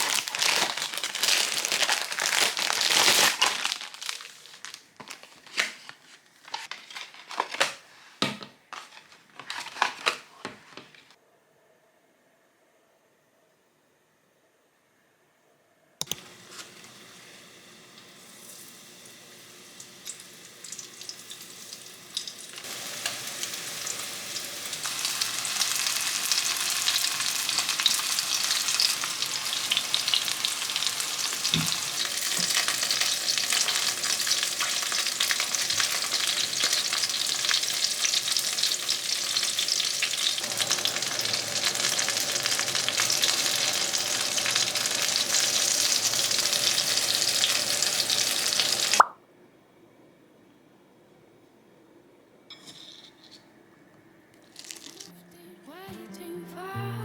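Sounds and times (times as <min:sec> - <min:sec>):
food sizzling in a frying pan: 0:00.0 - 0:04.7, 0:16.2 - 0:49.1.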